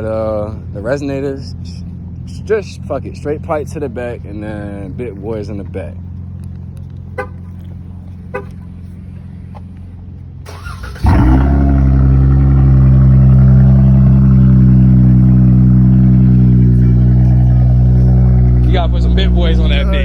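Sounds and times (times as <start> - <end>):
quiet engine idling: 0.0 - 20.0
car engine fast idle: 10.5 - 20.0.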